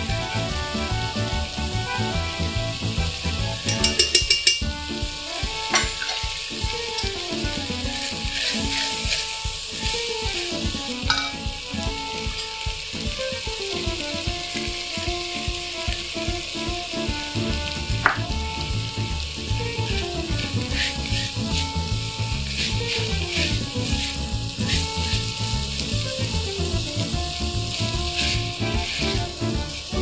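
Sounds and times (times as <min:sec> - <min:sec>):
background music: 0:00.0 - 0:30.0
vegetables sizzling in a pot: 0:00.0 - 0:30.0
spatula clicking against pot: 0:03.6 - 0:04.7
quick metallic taps: 0:03.7 - 0:04.7, 0:18.0 - 0:18.3.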